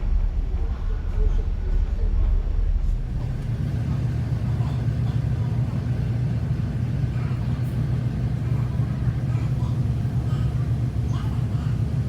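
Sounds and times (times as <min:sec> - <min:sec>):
ship engines droning: 0:03.0 - 0:12.0.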